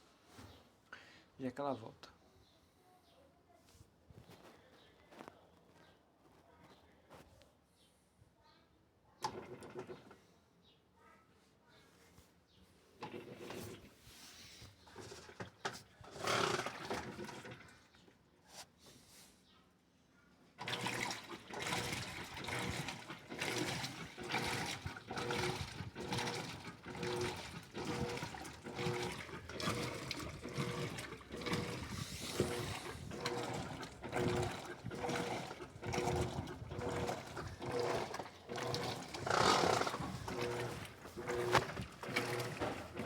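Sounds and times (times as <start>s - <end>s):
washing machine water sloshing: 9.2s - 10.2s, 14.8s - 18.1s, 20.6s - 43.0s.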